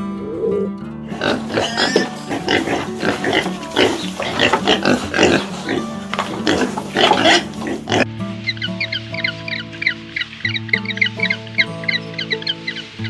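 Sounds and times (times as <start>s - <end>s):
animal grunting and squealing: 0.0s - 8.1s.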